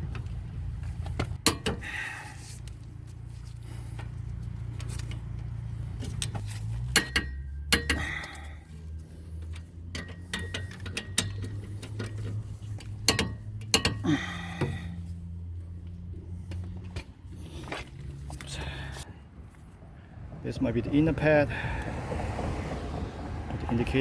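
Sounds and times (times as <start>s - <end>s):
metallic clicks of tools: 9.4s - 14.0s.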